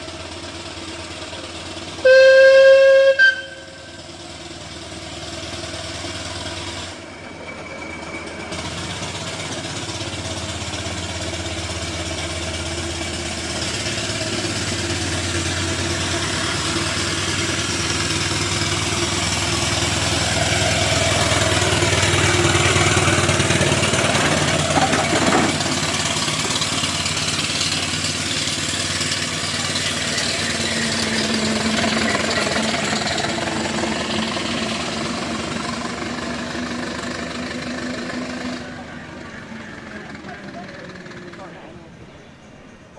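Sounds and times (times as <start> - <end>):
steam engine working: 0.0 - 42.9
steam whistle: 2.0 - 4.1.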